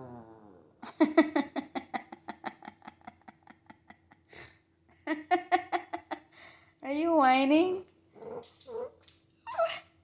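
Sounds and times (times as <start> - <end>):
puppy whining: 8.2 - 10.0.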